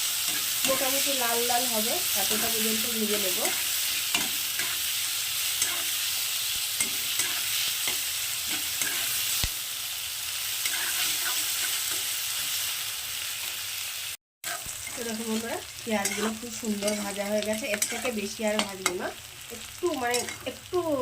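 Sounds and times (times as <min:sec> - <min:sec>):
onions sizzling in oil: 0:00.0 - 0:21.0
spatula scraping a pan: 0:02.3 - 0:06.1, 0:06.7 - 0:09.3, 0:10.6 - 0:12.5, 0:14.5 - 0:15.4, 0:16.0 - 0:19.0.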